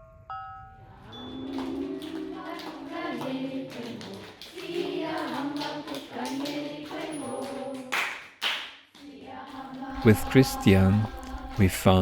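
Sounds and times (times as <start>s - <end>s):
high-pitched voices: 9.9s - 12.0s.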